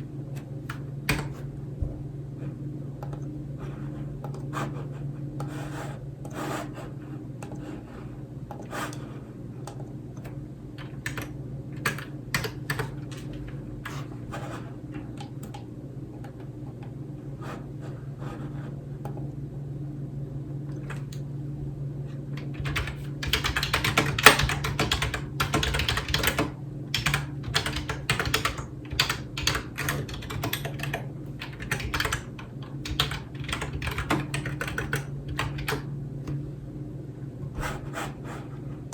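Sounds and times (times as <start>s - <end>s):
low steady hum: 0.0s - 38.9s
keyboard typing: 0.4s - 1.4s, 9.7s - 14.1s, 22.4s - 36.4s.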